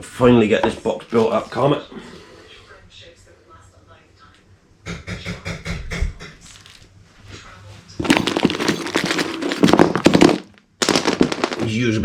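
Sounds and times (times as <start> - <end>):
dense loud crackling: 9.7 - 11.8.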